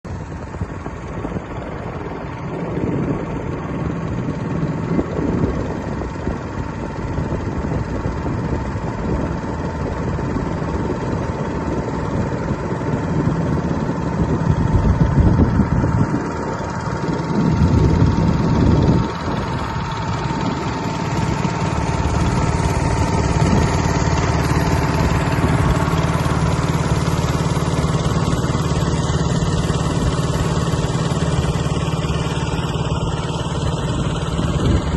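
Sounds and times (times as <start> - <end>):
motorboat engine droning: 0.0 - 34.9.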